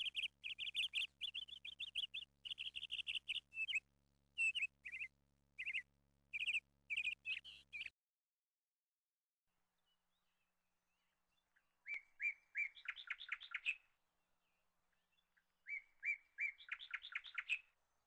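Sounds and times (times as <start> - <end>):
small bird chirping: 0.0 - 7.9, 10.9 - 13.9, 14.5 - 17.8.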